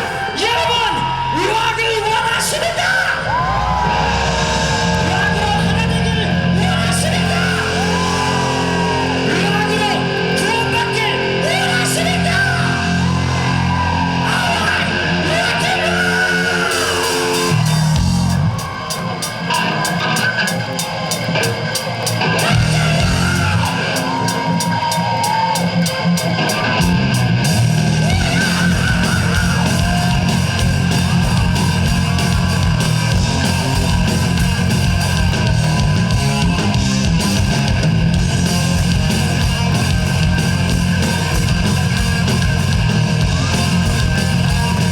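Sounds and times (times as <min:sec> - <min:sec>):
people yelling: 0:00.0 - 0:44.9
rock band playing heavy music: 0:00.0 - 0:44.9.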